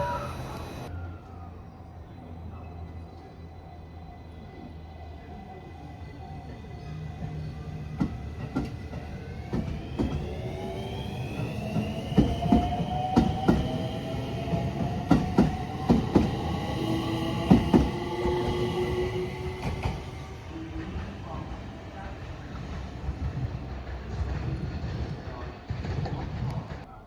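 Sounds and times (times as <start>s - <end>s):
electric train motor whine: 0.0s - 0.9s, 9.3s - 21.1s.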